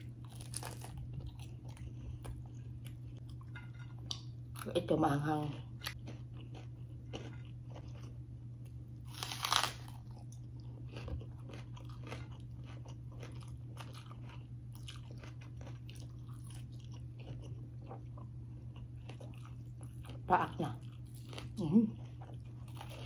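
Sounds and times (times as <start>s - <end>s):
chewing and mouth clicks: 5.8s - 8.2s, 10.1s - 23.0s
crunchy bite: 9.1s - 10.3s.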